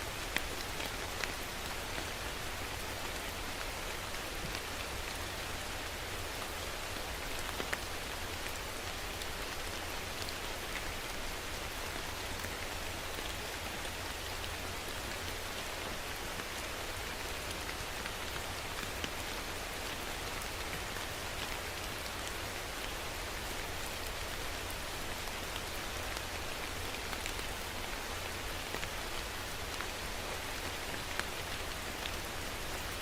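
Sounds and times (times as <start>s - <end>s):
rain falling: 0.0s - 33.0s.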